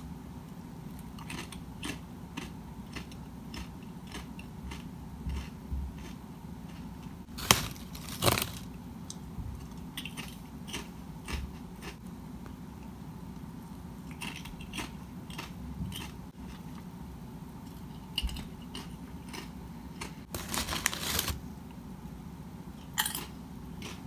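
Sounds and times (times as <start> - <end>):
person crunching a potato chip: 7.4 - 8.7, 18.8 - 21.4.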